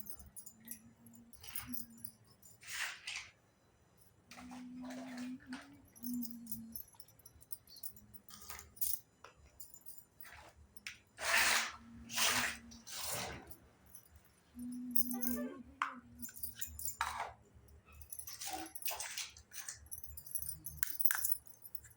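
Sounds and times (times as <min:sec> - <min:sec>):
toy pieces clicking and clinking: 0:18.0 - 0:21.9.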